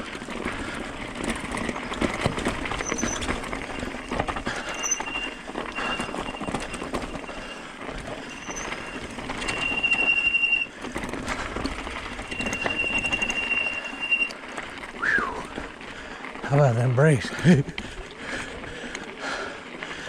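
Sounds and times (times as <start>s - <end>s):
bike rattling on rough ground: 0.0s - 20.0s
bike brakes squealing: 2.2s - 14.4s.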